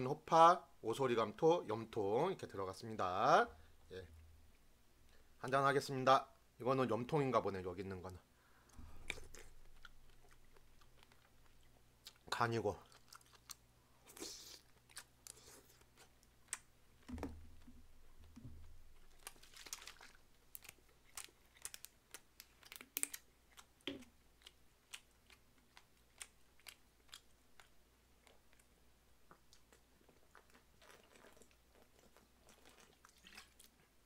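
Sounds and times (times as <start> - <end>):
close chewing: 8.8 - 16.7, 18.9 - 34.0
wet mouth clicks: 9.0 - 13.6.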